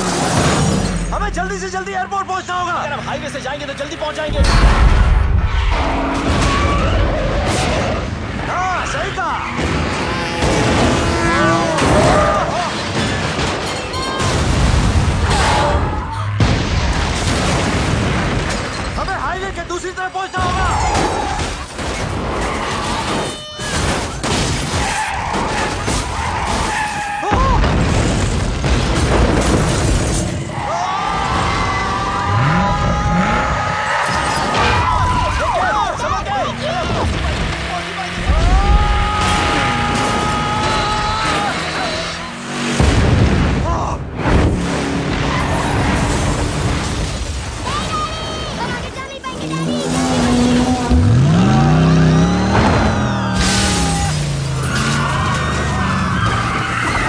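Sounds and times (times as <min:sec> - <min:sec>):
debris crashing: 0:00.0 - 0:01.6, 0:04.3 - 0:11.0, 0:11.6 - 0:57.0
heavy booms: 0:04.3 - 0:08.5, 0:14.2 - 0:19.2, 0:27.3 - 0:30.4, 0:38.2 - 0:41.1, 0:42.6 - 0:48.6, 0:50.7 - 0:54.6
car tyres squealing: 0:05.2 - 0:13.1, 0:24.7 - 0:27.4, 0:30.3 - 0:42.8, 0:44.8 - 0:46.6, 0:49.4 - 0:57.0.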